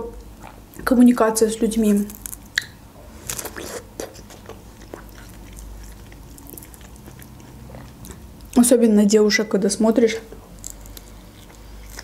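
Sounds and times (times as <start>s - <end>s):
person biting and chewing: 1.8s - 8.5s, 10.5s - 12.0s.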